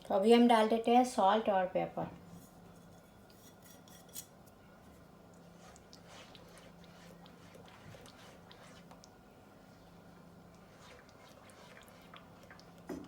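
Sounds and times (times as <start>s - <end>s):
low steady hum: 0.0s - 13.0s
utensil scraping saucepan: 10.6s - 12.6s.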